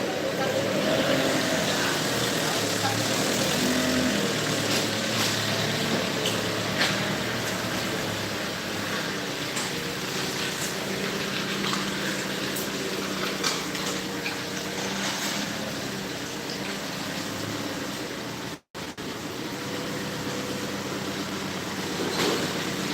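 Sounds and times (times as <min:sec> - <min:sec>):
vehicle engine running: 0:00.0 - 0:16.4.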